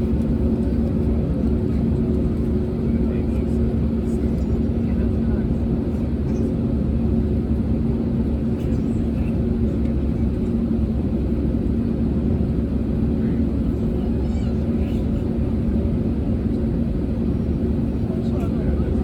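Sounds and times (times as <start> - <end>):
jet engines idling in cabin: 0.0 - 19.0.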